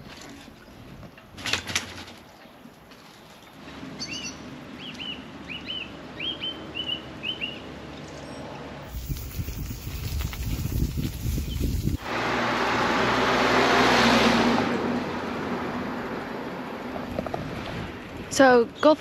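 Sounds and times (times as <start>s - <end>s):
bird chirping: 4.0s - 8.4s.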